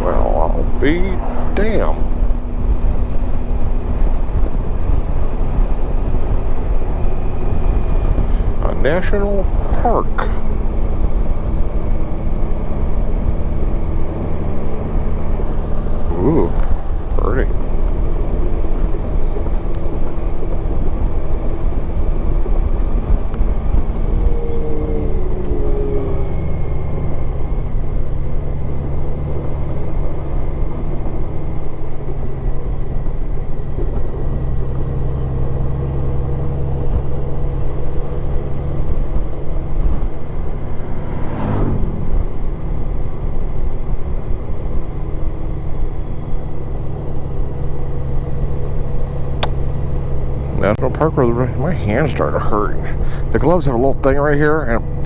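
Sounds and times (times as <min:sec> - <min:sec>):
motorcycle engine running: 0:00.0 - 0:55.0
wind and road noise: 0:00.0 - 0:55.0
sound sweeping down in pitch: 0:39.8 - 0:42.9.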